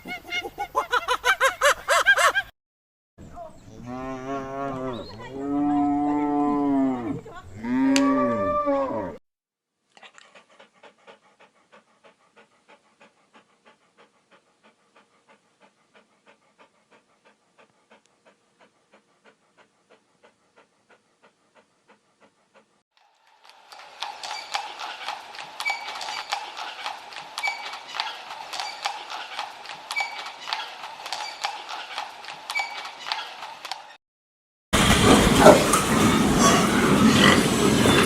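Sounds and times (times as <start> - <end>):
cow mooing: 3.8 - 9.2.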